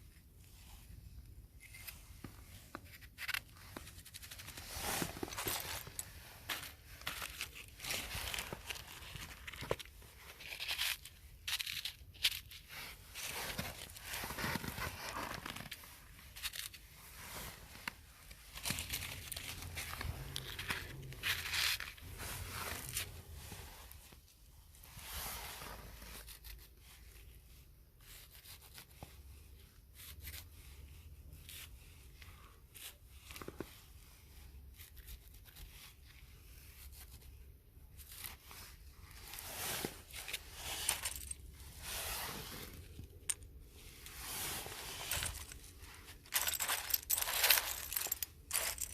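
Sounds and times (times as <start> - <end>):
tearing and rustling: 38.0 - 48.9.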